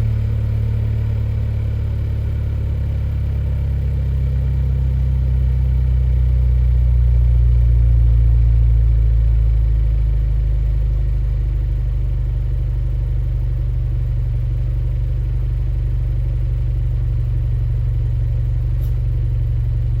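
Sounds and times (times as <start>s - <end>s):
car exhaust rumbling: 0.0s - 10.4s.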